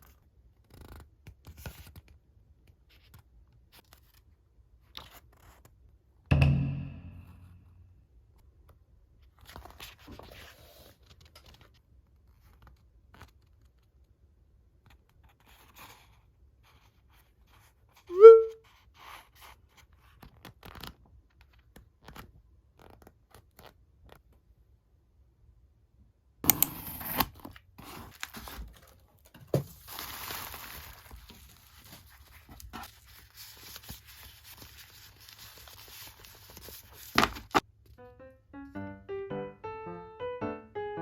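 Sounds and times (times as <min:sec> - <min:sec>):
thump: 0:06.3 - 0:07.4
short pitch-bending blip: 0:06.3 - 0:07.6, 0:18.2 - 0:18.5
packaging rustling: 0:27.4 - 0:37.6.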